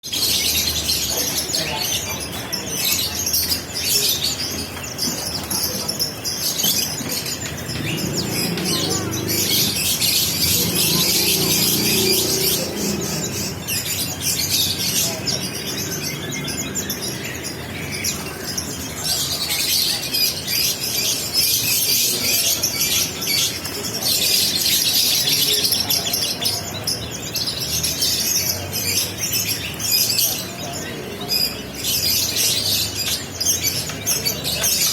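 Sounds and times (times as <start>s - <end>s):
songbirds chirping: 0.0s - 34.9s
low murmur: 1.1s - 20.2s.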